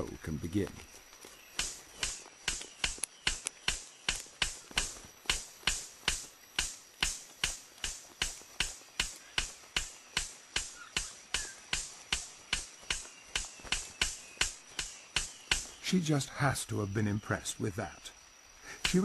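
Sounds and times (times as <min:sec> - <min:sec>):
bird sharp clicks: 0:01.4 - 0:15.8.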